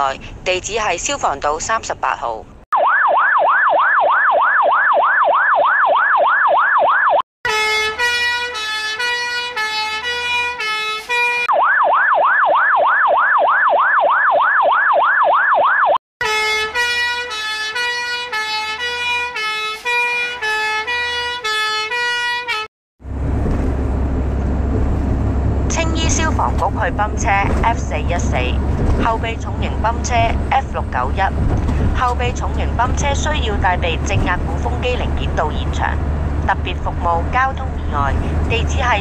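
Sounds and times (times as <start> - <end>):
fire engine siren yelping: 2.8 - 22.7.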